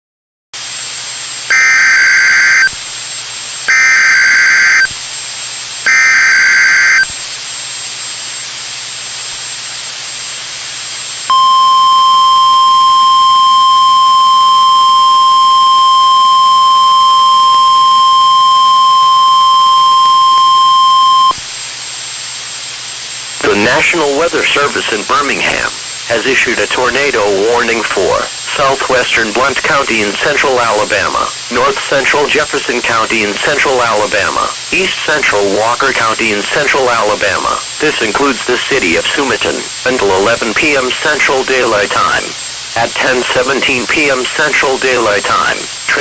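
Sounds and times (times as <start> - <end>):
radio hiss: 0.6 - 2.9, 3.6 - 5.0, 5.7 - 7.5, 23.3 - 46.0
digital header bursts: 1.5 - 2.7, 3.7 - 4.9, 5.9 - 7.1
steady warning alarm tone: 1.5 - 2.8, 3.7 - 5.0, 5.9 - 7.1, 11.3 - 21.4.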